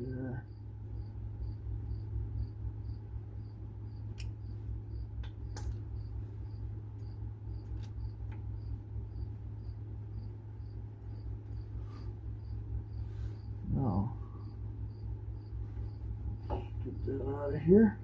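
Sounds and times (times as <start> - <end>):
steady low hum: 0.0 - 18.0
metallic clicks and clinks of tools: 7.0 - 8.4, 11.0 - 11.9.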